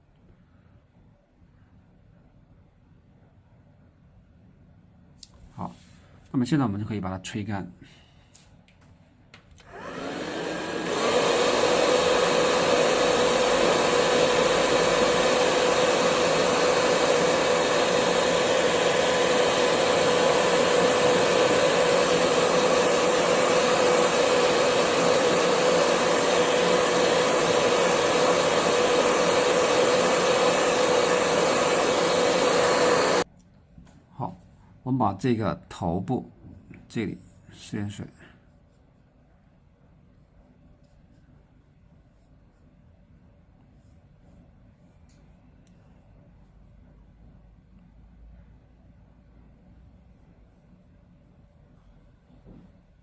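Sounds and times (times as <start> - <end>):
hair dryer whining and blowing: 9.6 - 33.3.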